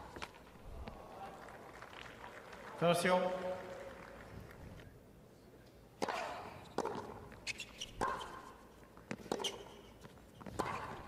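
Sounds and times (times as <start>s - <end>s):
racquet hitting tennis ball: 6.0s - 11.0s.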